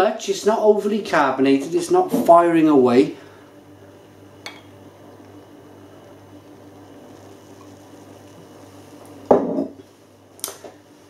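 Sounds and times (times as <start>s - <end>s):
room hum with faint buzz: 0.0s - 11.0s.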